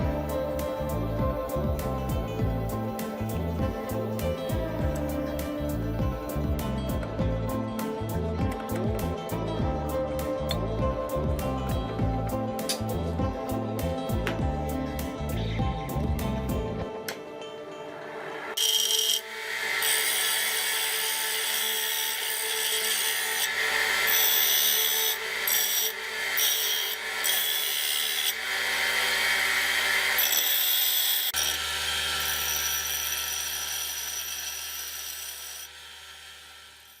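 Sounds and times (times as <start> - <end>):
bench grinder motor hum: 18.0 - 37.0.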